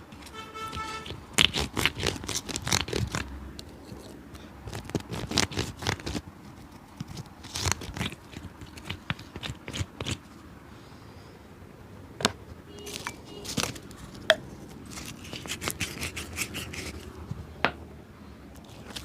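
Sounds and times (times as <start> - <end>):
hand tool scraping a shoe: 0.2 - 3.2, 14.9 - 17.2.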